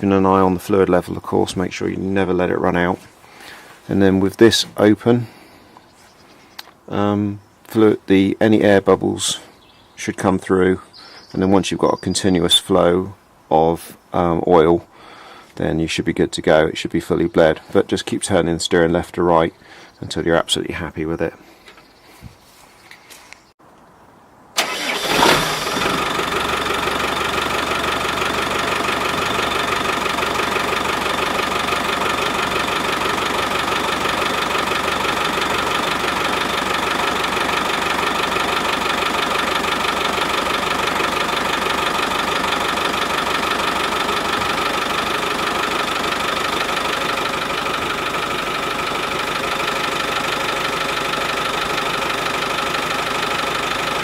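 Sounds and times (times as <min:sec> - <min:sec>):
diesel engine starting and idling: 0:24.6 - 0:54.0.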